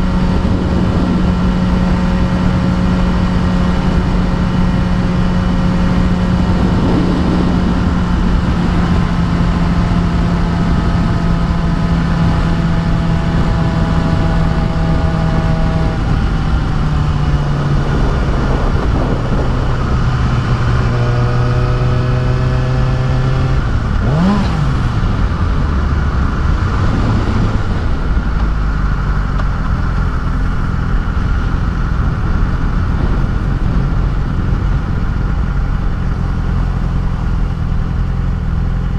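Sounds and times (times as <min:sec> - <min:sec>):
motorcycle engine running: 0:00.0 - 0:38.9
wind rush on microphone: 0:00.0 - 0:38.9.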